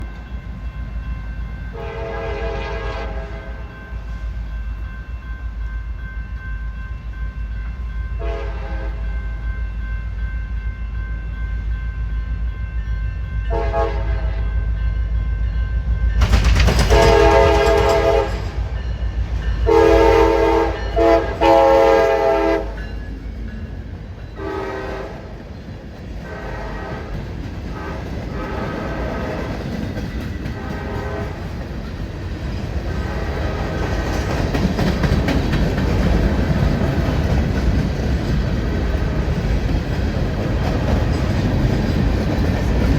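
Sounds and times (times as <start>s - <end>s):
train rumbling: 0.0s - 42.9s
locomotive air horn blasts: 1.7s - 3.7s, 8.2s - 9.1s, 13.5s - 14.4s, 16.9s - 18.6s, 19.6s - 22.8s, 24.4s - 25.3s, 26.2s - 27.1s, 27.7s - 29.4s, 30.6s - 31.5s.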